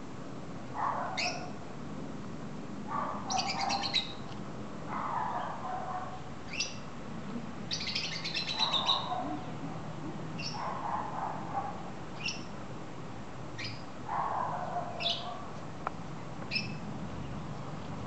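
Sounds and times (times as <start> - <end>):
birds chirping and trilling: 0.8 - 1.6, 2.9 - 4.3, 4.9 - 6.9, 7.7 - 9.6, 10.4 - 12.6, 13.5 - 15.6, 16.2 - 17.7.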